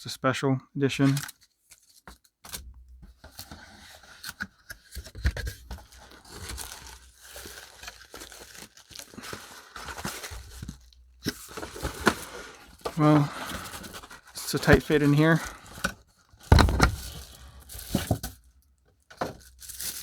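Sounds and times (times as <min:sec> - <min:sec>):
wrapping crinkling and tearing: 0:01.0 - 0:02.3, 0:05.6 - 0:18.6, 0:19.3 - 0:20.0
small taps and scrapes: 0:01.2 - 0:05.8.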